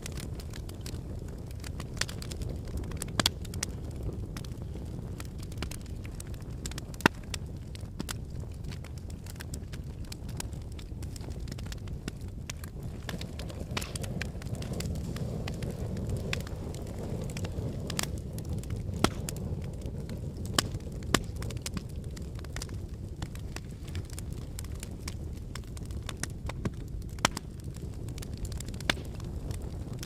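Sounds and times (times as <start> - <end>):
sharp pops from fire: 0.0 - 30.0
wood fire crackling: 0.0 - 30.0.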